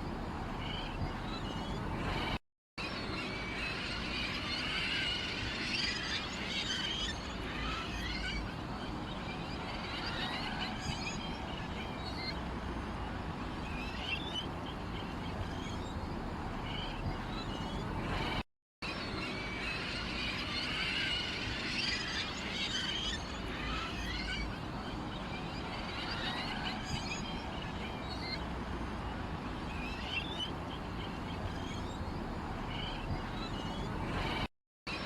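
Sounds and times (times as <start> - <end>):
small songbirds chirping: 5.8 - 18.4, 21.9 - 34.4.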